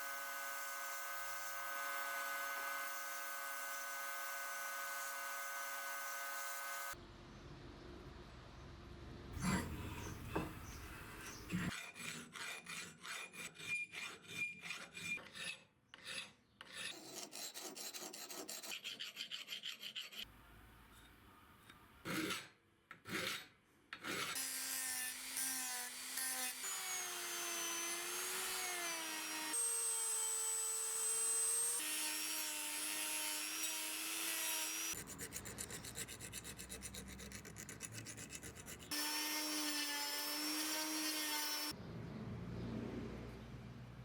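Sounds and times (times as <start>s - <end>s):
hand file scraping: 9.4s - 20.3s, 31.6s - 41.7s
power tool whining: 24.4s - 35.0s.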